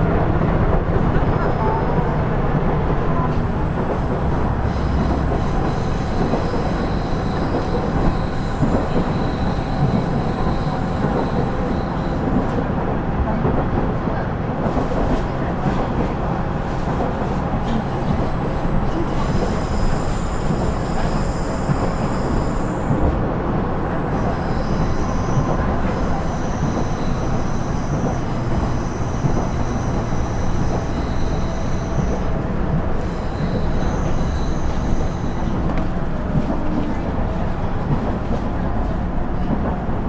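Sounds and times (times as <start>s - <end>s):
railcar diesel engine rumble: 0.0s - 40.0s
high-pitched wheel squeals: 3.3s - 12.6s, 17.2s - 36.0s.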